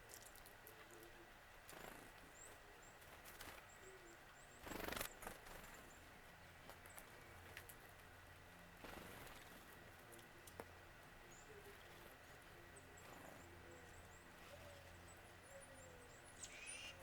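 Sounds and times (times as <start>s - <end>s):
high-pitched bird calls: 12.8s - 17.0s.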